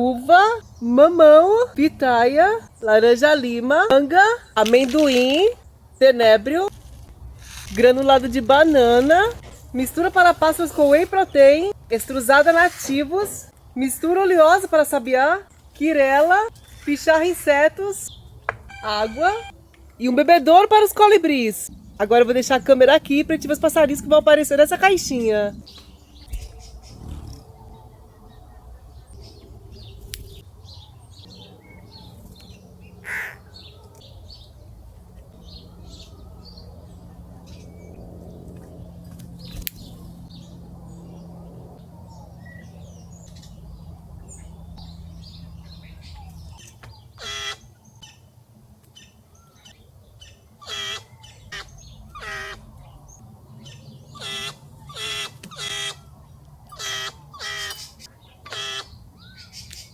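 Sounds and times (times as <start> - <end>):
small birds chirping: 0.0 - 59.9
loud fuller bird calls: 38.8 - 48.2, 49.3 - 59.9.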